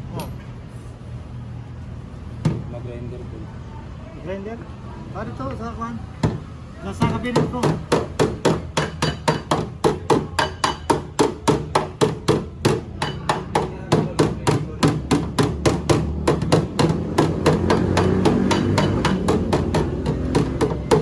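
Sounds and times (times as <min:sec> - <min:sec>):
hammer striking metal: 0:07.0 - 0:21.0.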